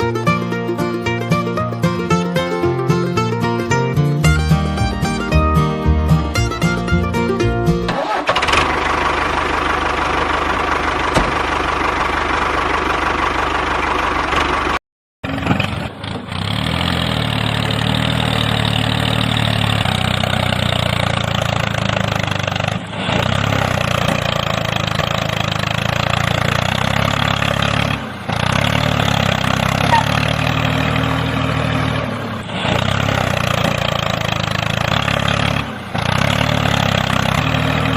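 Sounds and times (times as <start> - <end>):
engine running: 0.0 - 37.9.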